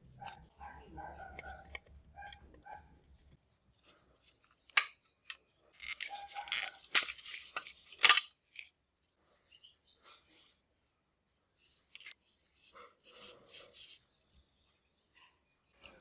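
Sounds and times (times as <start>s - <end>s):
scraping on small parts: 3.4s - 8.8s, 11.9s - 14.4s.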